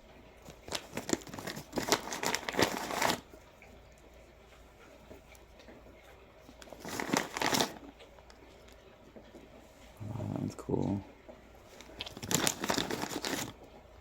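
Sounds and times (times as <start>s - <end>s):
packaging crinkling: 0.4s - 3.3s, 6.6s - 8.8s, 11.7s - 13.7s.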